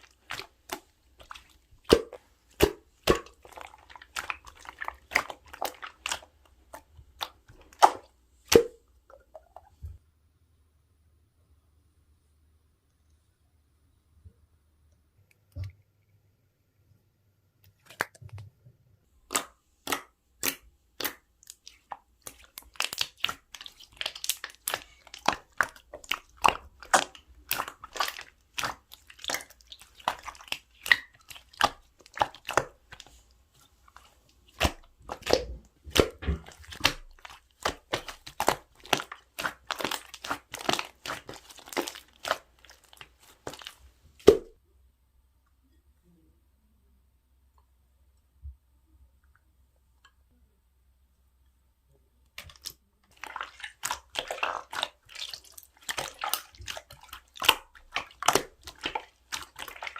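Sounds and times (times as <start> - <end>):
slime squished by hand: 0.0 - 9.5, 19.2 - 44.6, 52.4 - 59.9.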